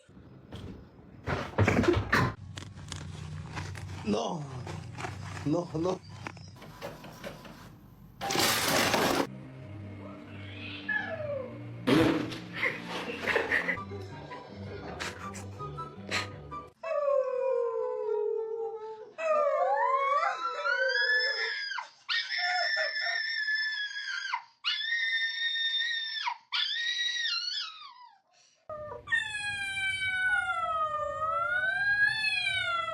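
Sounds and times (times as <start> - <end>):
animal howling: 10.1 - 11.6, 28.7 - 32.9.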